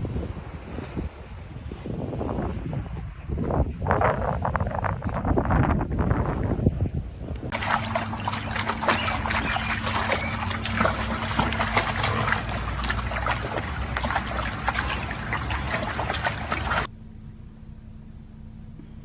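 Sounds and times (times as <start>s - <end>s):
water splashing and trickling: 7.5s - 16.9s.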